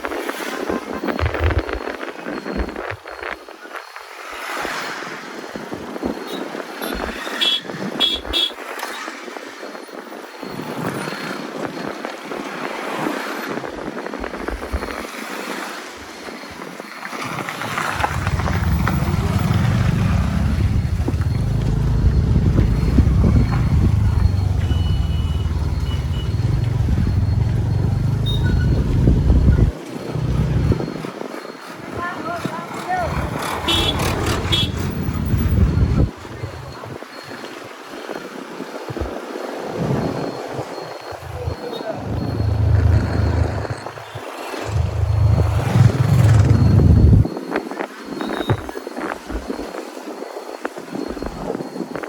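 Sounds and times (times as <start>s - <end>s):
wind buffeting microphone: 0.0s - 3.7s, 5.5s - 52.0s
scooter road noise: 17.0s - 37.4s, 38.2s - 47.4s.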